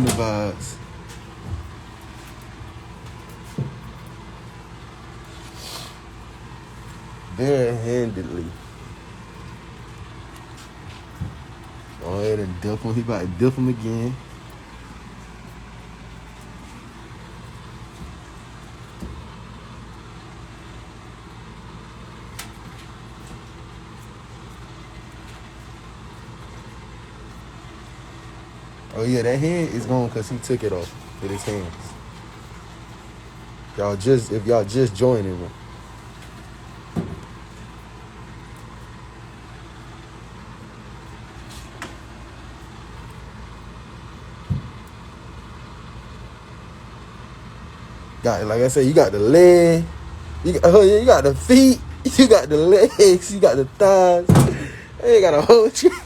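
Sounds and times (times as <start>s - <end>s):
dull thump: 0.0s - 4.1s, 36.9s - 37.4s, 44.4s - 44.9s, 54.2s - 54.9s
low engine hum: 0.0s - 56.0s
thump: 37.0s - 37.3s, 54.3s - 54.8s.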